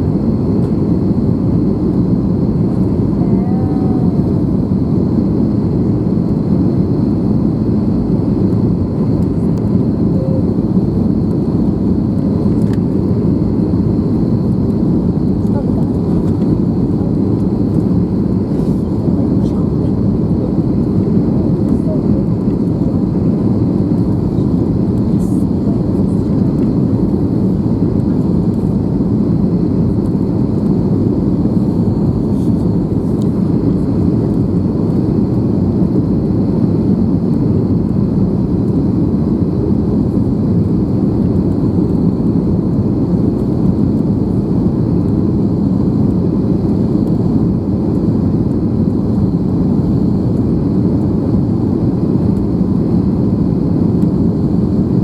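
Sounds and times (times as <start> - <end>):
airplane cabin engine drone: 0.0 - 55.0
faint high whine: 2.3 - 36.7.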